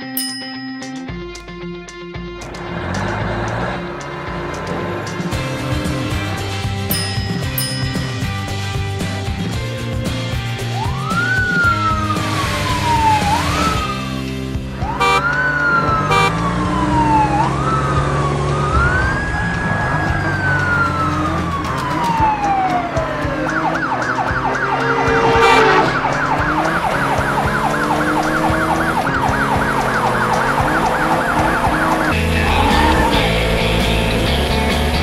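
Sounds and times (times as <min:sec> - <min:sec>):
cartoon police siren: 0:10.7 - 0:14.2, 0:14.8 - 0:33.3.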